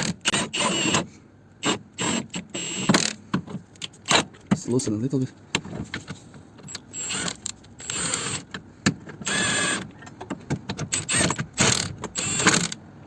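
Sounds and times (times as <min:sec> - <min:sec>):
impact gun whirring: 0:10.9 - 0:12.8.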